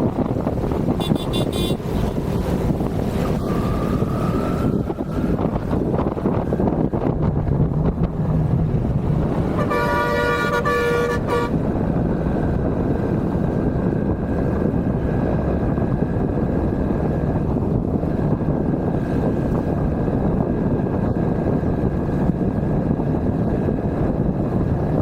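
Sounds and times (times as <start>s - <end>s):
wind and road noise: 0.0s - 25.0s
vehicle horn: 1.0s - 2.2s, 9.5s - 11.6s.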